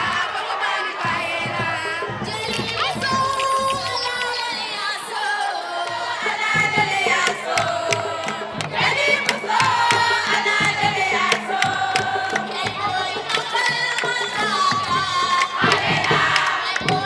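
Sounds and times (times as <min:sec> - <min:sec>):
crowd noise: 0:00.0 - 0:17.0
group singing and chanting: 0:00.0 - 0:17.0
sharp percussive hits: 0:06.6 - 0:17.0.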